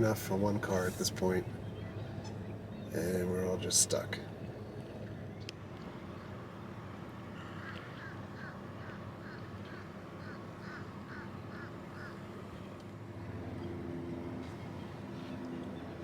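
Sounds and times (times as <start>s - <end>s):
marsh bird calling: 7.3s - 12.3s.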